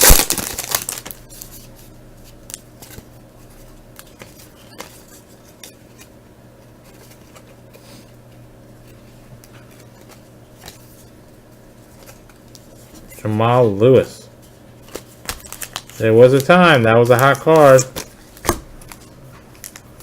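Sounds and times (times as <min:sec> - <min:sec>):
steady low hum: 0:00.0 - 0:20.0
trading cards flipped through: 0:14.8 - 0:20.0.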